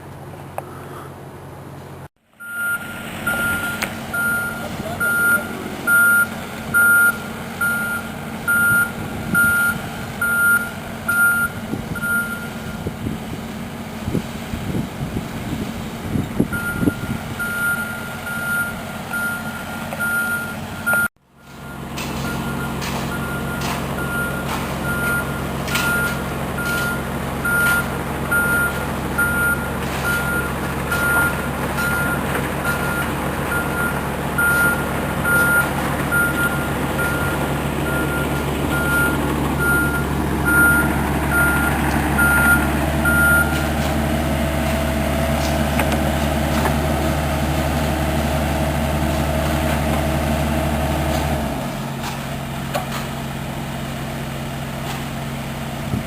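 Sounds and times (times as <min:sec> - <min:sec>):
diesel engine running: 0:00.0 - 0:56.0
backup alarm beeping: 0:02.4 - 0:12.8, 0:16.5 - 0:43.6.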